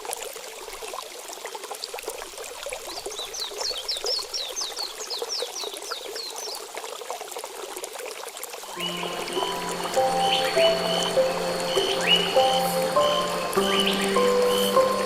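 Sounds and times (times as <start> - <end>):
stream water babbling: 0.0 - 15.0
high downward chirping notes: 8.7 - 15.0.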